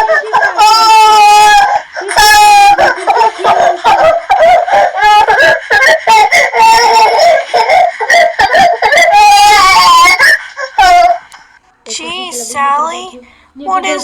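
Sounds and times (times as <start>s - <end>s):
high-pitched voice crying: 0.0s - 11.4s.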